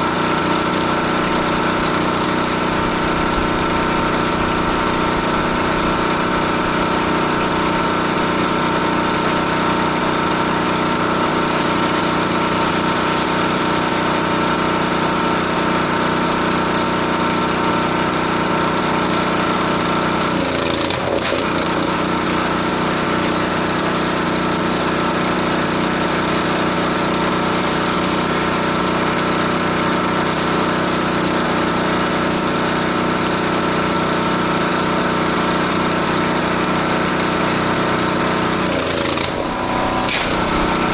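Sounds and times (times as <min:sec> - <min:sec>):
pressure washer engine running: 0:00.0 - 0:40.9
spray hissing: 0:38.8 - 0:40.9.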